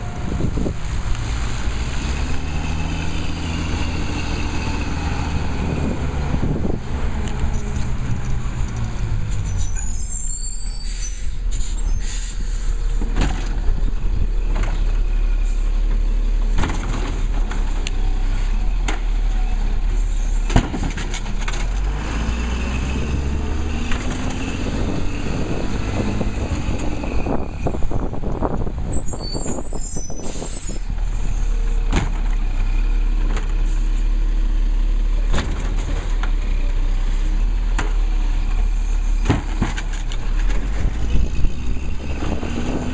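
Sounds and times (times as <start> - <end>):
air brake hisses: 10.6 - 12.8.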